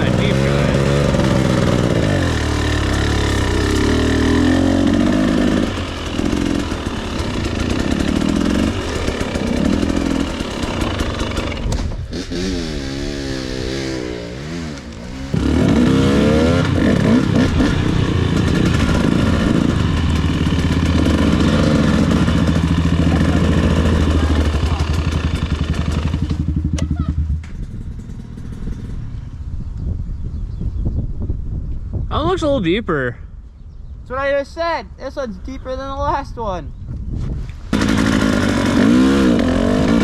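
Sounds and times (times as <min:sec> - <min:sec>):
dirt bike engine revving: 0:00.0 - 0:29.2, 0:37.7 - 0:40.0.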